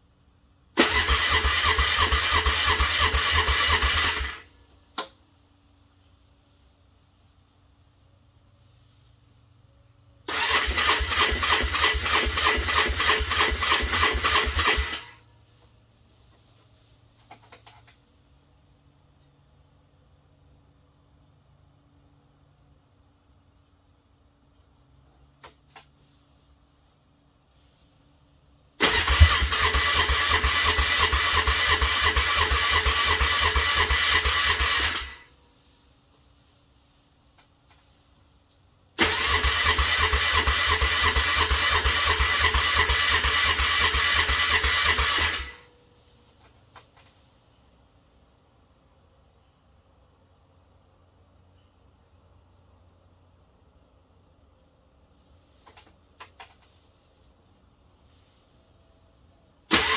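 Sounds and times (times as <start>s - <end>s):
car starter motor cranking: 0.8s - 4.5s, 10.3s - 15.2s, 28.8s - 35.3s, 39.0s - 45.6s.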